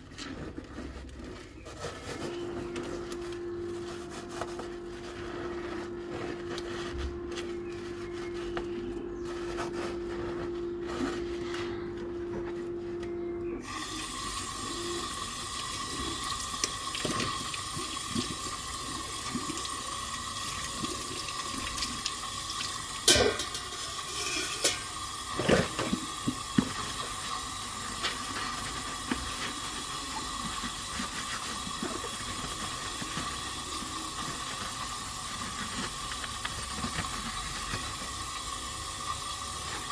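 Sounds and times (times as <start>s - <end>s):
low steady hum: 0.1s - 39.8s
tap water running into sink: 13.6s - 39.9s
dishware clinking and knocking: 23.1s - 25.7s.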